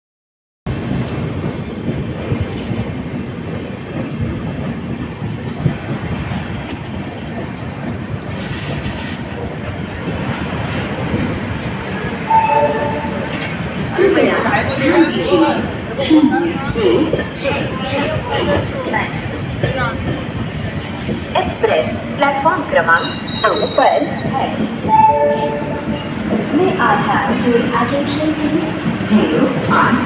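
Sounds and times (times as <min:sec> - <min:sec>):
train rumbling: 0:00.7 - 0:30.0
wheels clattering over rail joints: 0:01.0 - 0:14.9
brief pitched tone: 0:12.3 - 0:13.4, 0:24.8 - 0:26.1.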